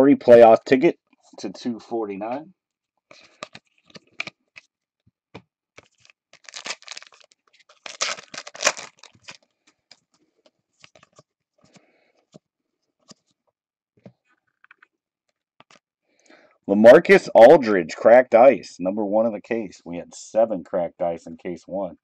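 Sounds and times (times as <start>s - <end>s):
card pack wrapper tearing: 5.8s - 9.5s.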